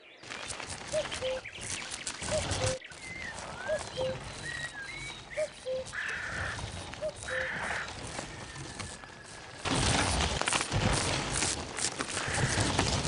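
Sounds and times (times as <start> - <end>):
harsh rasping calls: 0.6 - 9.4
high bird whistles: 0.9 - 6.0.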